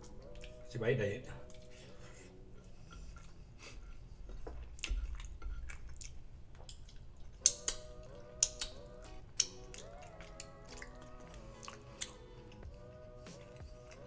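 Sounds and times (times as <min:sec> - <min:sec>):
wet chewing: 0:04.3 - 0:14.0
lip smacks: 0:04.8 - 0:08.8, 0:09.4 - 0:12.7.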